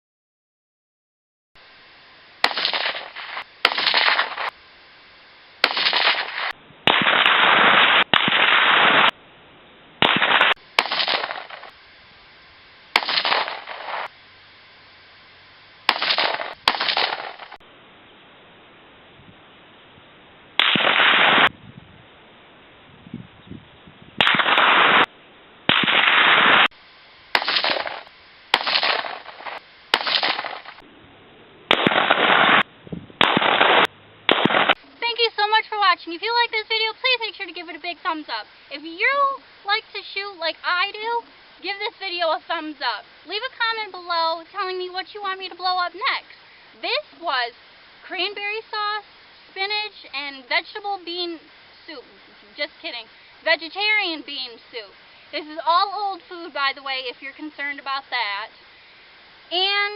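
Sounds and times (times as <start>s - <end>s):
rifle shots: 2.4s - 4.5s, 5.6s - 9.1s, 10.0s - 11.7s, 13.0s - 14.1s, 15.9s - 17.6s, 20.6s - 21.5s, 24.2s - 25.1s, 25.7s - 26.7s, 27.3s - 30.8s, 31.7s - 32.6s, 33.2s - 34.8s.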